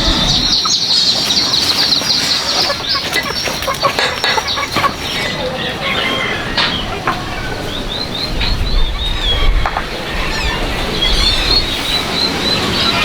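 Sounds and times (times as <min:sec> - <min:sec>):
low rumble: 0:00.0 - 0:00.6
birds chirping: 0:00.0 - 0:13.0.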